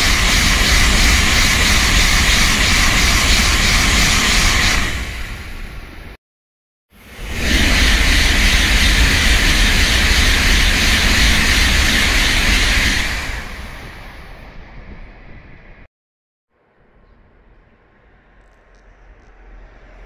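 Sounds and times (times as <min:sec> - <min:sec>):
high-speed train passing: 0:00.0 - 0:06.2, 0:07.0 - 0:15.9.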